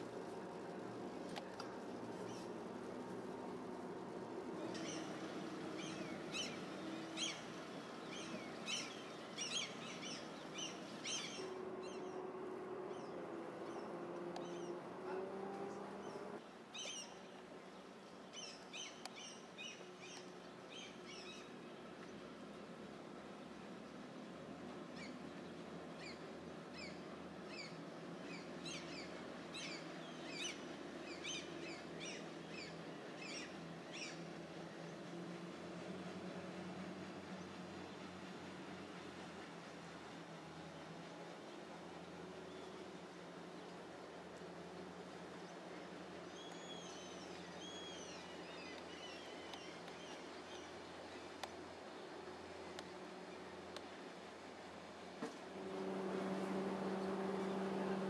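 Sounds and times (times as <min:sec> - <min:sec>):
steady low hum: 0:20.0 - 0:58.0.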